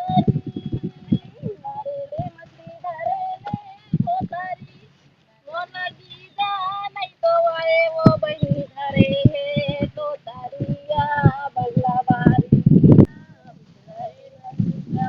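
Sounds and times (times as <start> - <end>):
low thumps: 0.0 - 4.8, 6.5 - 15.0
person singing folk song: 0.0 - 15.0.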